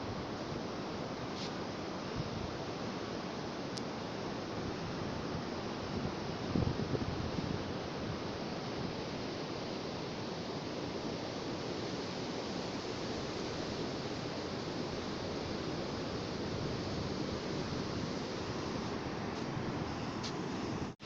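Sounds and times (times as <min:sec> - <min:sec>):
sea surf washing in: 0:04.5 - 0:21.0.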